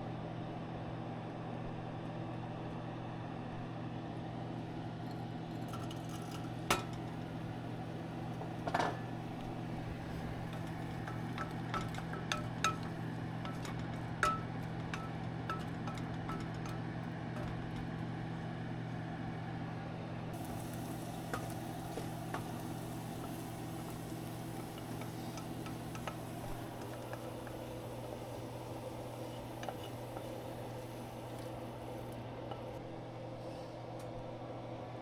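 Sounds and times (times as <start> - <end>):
food sizzling in a frying pan: 5.7 - 17.7, 20.4 - 32.2.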